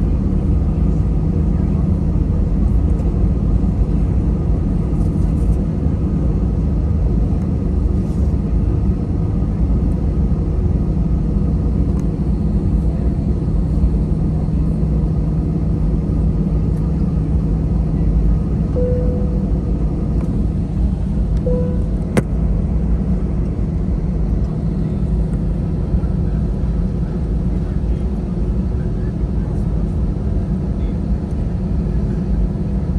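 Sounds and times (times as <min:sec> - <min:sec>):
jet engine rumble in cabin: 0:00.0 - 0:32.9
steady low hum: 0:00.0 - 0:32.9
short faint tone: 0:18.7 - 0:20.0, 0:21.4 - 0:22.3.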